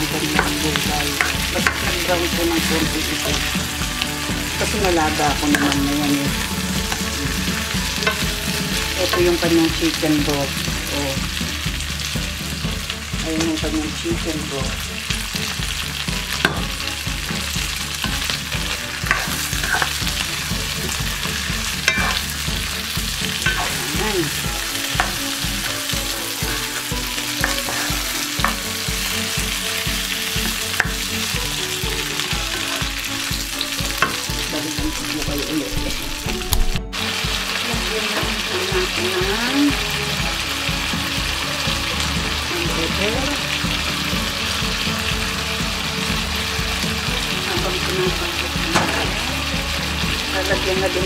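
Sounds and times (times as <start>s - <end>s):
food sizzling in a wok: 0.0s - 51.0s
spatula scraping a pan: 0.2s - 9.4s, 15.4s - 34.4s.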